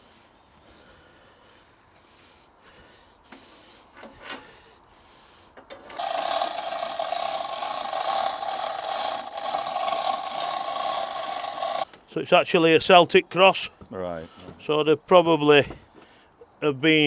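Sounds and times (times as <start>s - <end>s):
loud mechanical rasping with hum: 6.0s - 11.9s.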